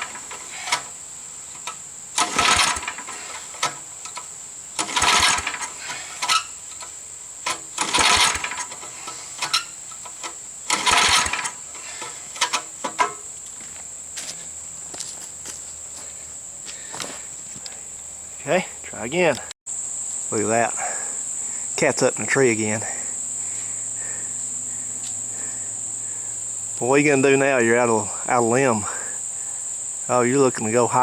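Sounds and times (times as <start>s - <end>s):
engine cranking over: 0.0s - 13.4s.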